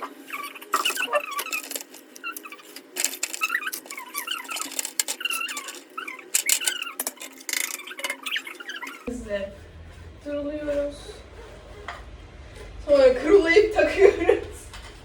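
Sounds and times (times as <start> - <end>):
squeaks of rubbing wet plastic: 0.0 - 9.1
plastic parts clicking and knocking: 0.6 - 8.9.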